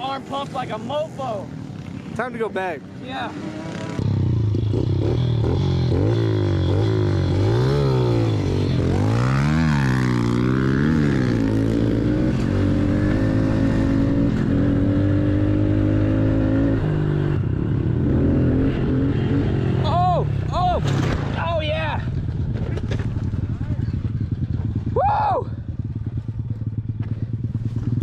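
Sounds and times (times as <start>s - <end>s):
dirt bike engine revving: 0.0s - 21.4s.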